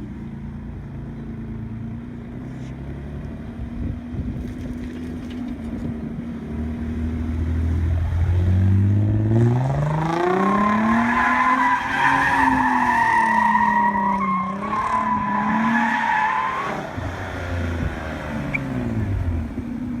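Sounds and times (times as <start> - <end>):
car engine revving: 6.5 - 20.0.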